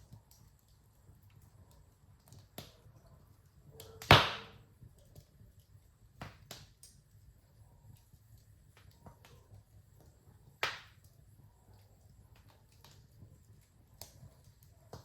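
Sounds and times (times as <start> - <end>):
sharp snaps of fire: 0.0 - 15.0
wood fire crackling: 0.0 - 15.0
loud pop trailing into hiss: 4.1 - 4.6.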